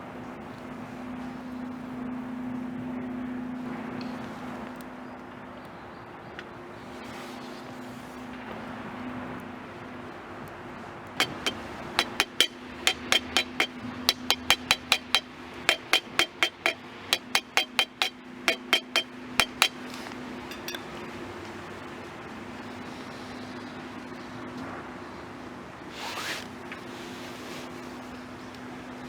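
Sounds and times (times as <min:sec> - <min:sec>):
steady low hum: 0:06.5 - 0:25.9
hard object clinking: 0:11.2 - 0:21.1.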